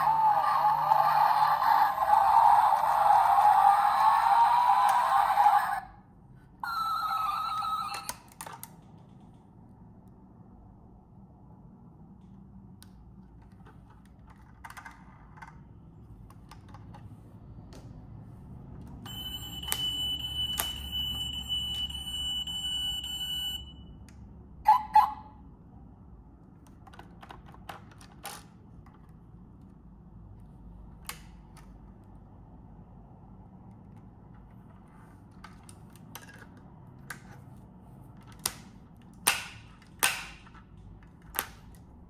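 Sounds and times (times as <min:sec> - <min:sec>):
steady high tone: 0:00.0 - 0:05.9, 0:06.6 - 0:08.1.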